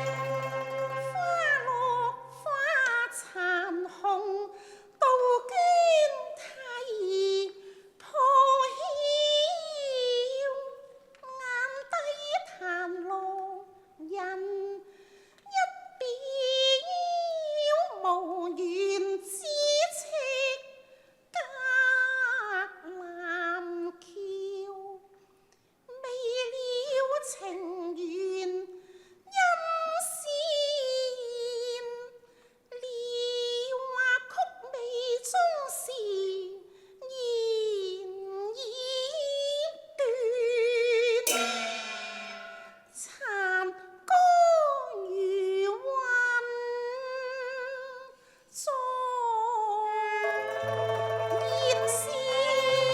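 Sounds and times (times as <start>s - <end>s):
woman singing opera: 1.0s - 14.8s, 29.4s - 32.1s, 32.7s - 41.2s, 43.4s - 52.9s.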